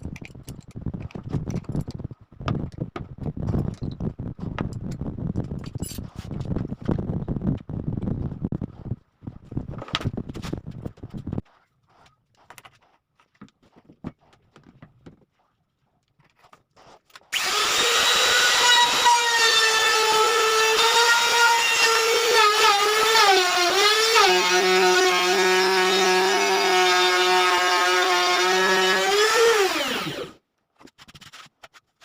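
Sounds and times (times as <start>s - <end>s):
table saw motor whining: 17.3s - 30.4s.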